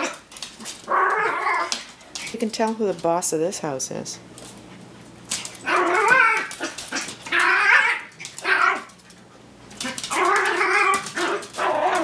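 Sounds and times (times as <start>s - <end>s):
small dog growling and yowling: 0.0s - 1.8s, 5.6s - 9.0s, 9.8s - 12.0s.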